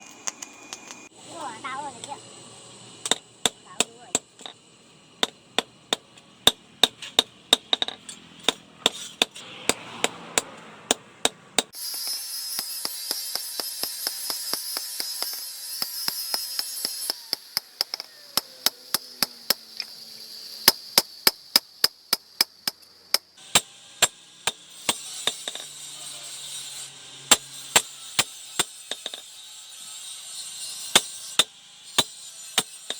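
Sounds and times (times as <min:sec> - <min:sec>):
tool striking wood: 0:03.0 - 0:04.6, 0:05.2 - 0:19.7, 0:20.7 - 0:25.8, 0:27.3 - 0:29.3, 0:30.8 - 0:32.9.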